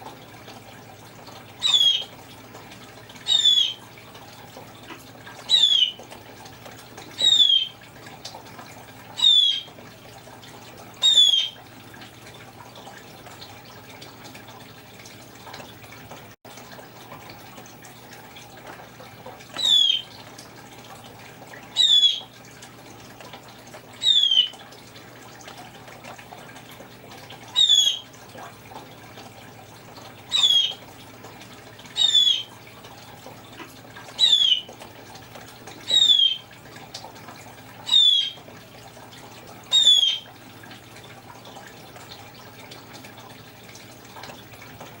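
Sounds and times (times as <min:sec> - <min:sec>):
parrot mimicking bird calls: 0:01.6 - 0:02.0, 0:03.3 - 0:03.8, 0:05.5 - 0:06.0, 0:07.2 - 0:07.7, 0:09.2 - 0:09.7, 0:11.0 - 0:11.6, 0:19.6 - 0:20.0, 0:21.8 - 0:22.2, 0:24.0 - 0:24.5, 0:27.5 - 0:28.0, 0:30.3 - 0:30.8, 0:32.0 - 0:32.5, 0:34.2 - 0:34.7, 0:35.9 - 0:36.4, 0:37.9 - 0:38.4, 0:39.7 - 0:40.2.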